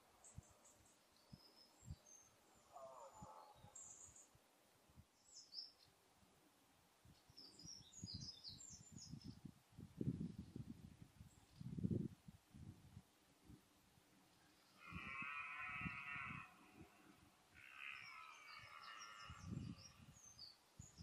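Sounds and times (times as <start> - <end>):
faint high bird chirps: 7.3 - 9.4, 17.7 - 21.0.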